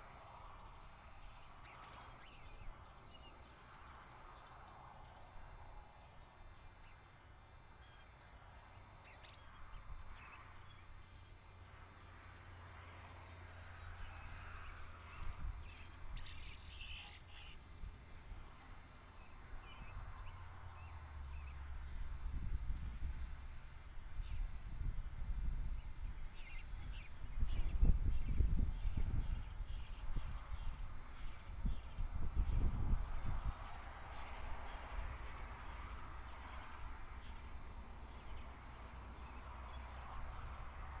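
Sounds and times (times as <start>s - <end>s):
birds calling: 14.1s - 17.6s.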